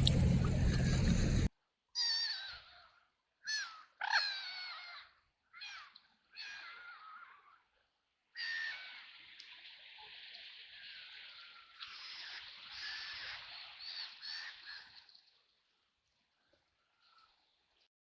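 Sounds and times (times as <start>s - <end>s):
ducks quacking: 0.0s - 1.5s.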